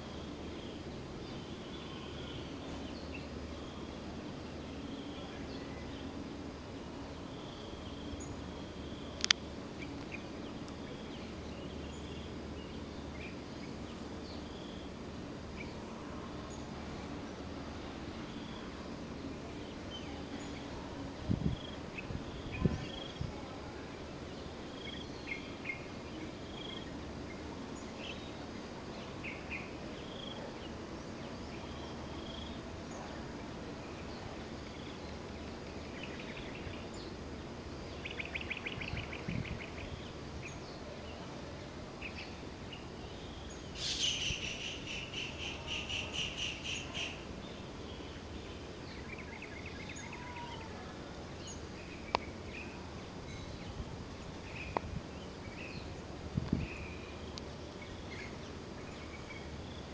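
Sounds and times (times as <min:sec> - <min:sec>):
outdoor background noise: 0:00.0 - 0:59.9
birds chirping: 0:42.0 - 0:50.7
rapid repeated bird notes: 0:42.1 - 0:49.3.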